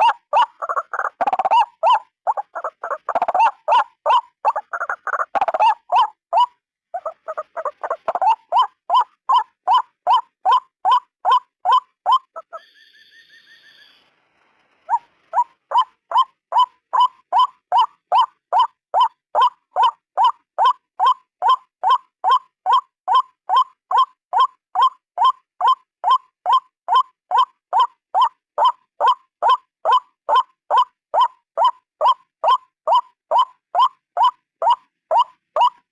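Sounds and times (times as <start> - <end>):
waterhen croaking calls: 0.0 - 14.0, 14.9 - 35.9
faint high pulsed trill: 12.6 - 14.2.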